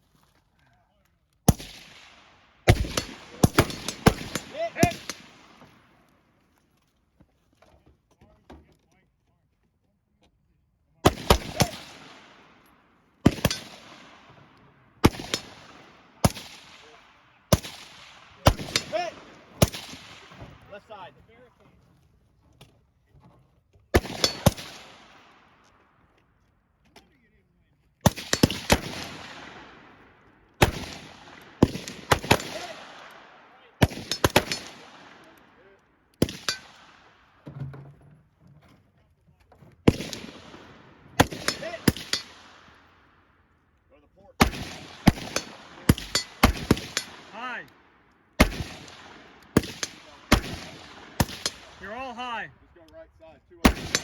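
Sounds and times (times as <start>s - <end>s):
rifle shots with echo: 1.5s - 5.9s, 11.0s - 20.4s, 23.9s - 25.7s, 28.0s - 37.4s, 39.8s - 43.4s, 44.4s - 52.1s, 53.6s - 54.0s.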